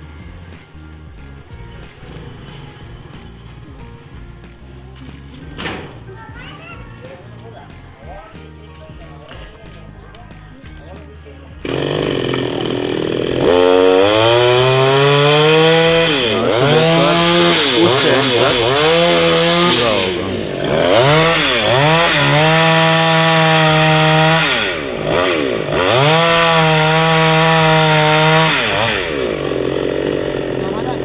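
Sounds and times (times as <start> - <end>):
chainsaw cutting branches: 0.0 - 31.0.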